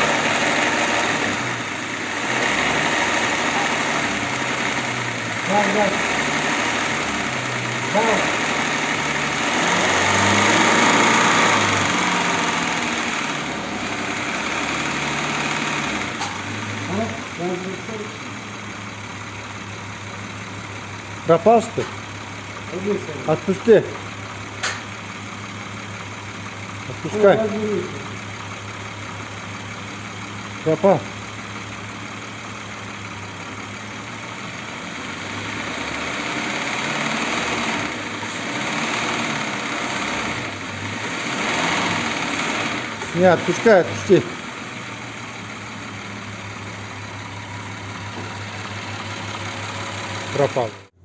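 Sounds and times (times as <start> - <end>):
car engine running: 0.0 - 51.0
engine knock: 0.0 - 51.0.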